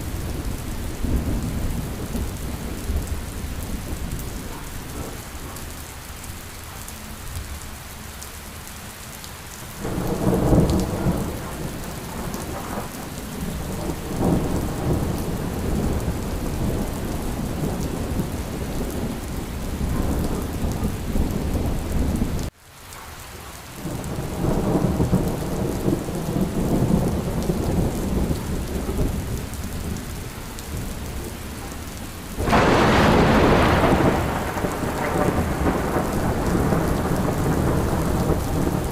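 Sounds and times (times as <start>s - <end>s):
rolling thunder: 0.0s - 5.6s, 9.8s - 22.5s, 23.8s - 38.9s
steady rain: 0.0s - 38.9s
bright peal of thunder: 32.4s - 38.9s.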